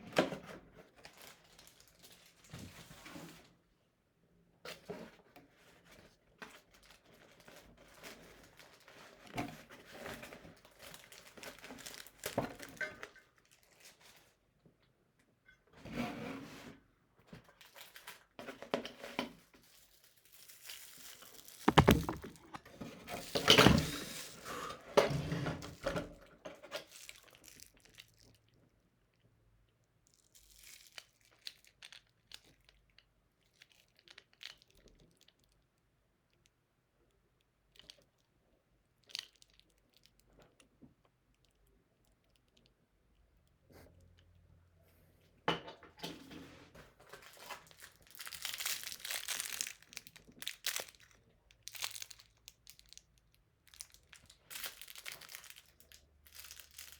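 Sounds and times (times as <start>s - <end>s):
packaging rustling and crinkling: 19.9s - 22.6s, 47.1s - 53.0s, 53.7s - 56.9s.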